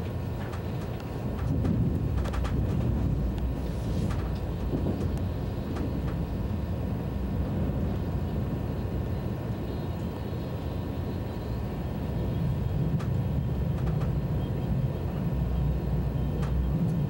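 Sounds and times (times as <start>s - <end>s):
train low rumble: 0.0s - 17.0s
faint clicks: 16.4s - 17.0s.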